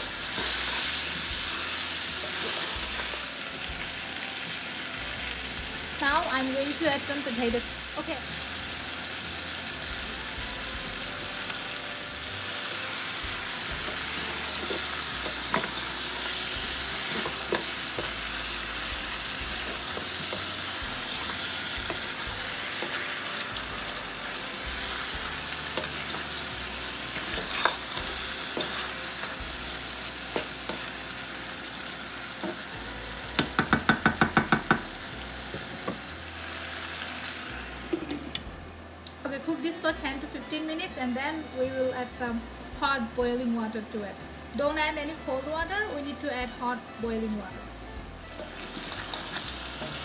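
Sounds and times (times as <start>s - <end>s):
food sizzling in a wok: 0.0s - 50.0s
wooden spatula knocking: 33.4s - 34.9s.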